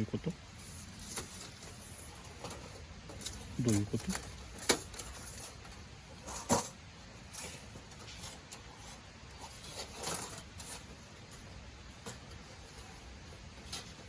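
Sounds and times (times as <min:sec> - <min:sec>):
soft scrapes and rustles: 0:00.4 - 0:14.0.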